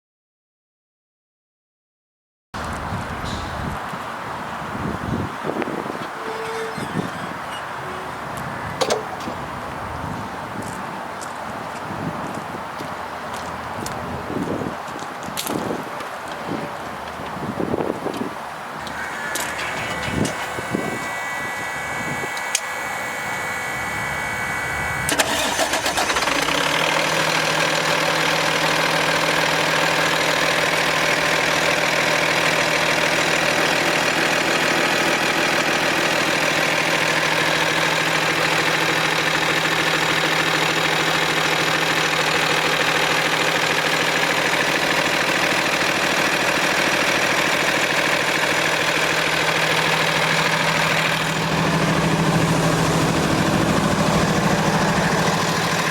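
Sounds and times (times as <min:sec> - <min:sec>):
diesel engine starting and idling: 0:04.6 - 0:10.4, 0:18.7 - 0:55.9
clicks: 0:18.8 - 0:21.1, 0:22.3 - 0:22.8.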